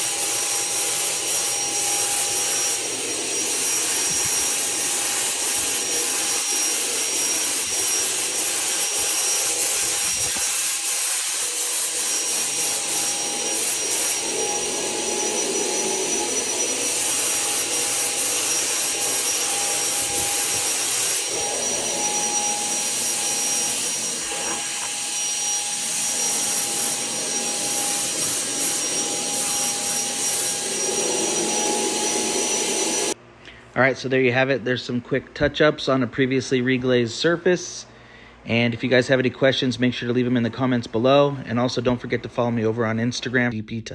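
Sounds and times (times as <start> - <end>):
paint sprayer hissing and whining: 0.0 - 33.2.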